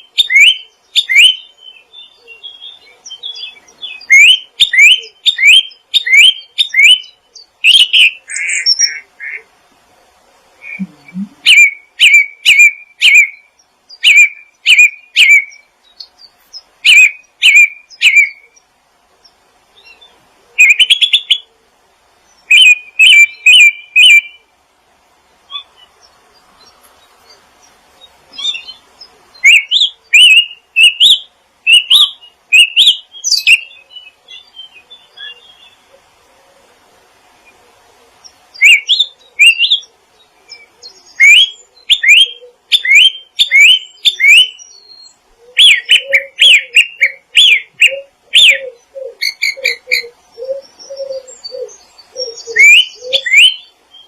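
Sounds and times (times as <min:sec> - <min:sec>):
songbird chirping: 0:00.0 - 0:54.0.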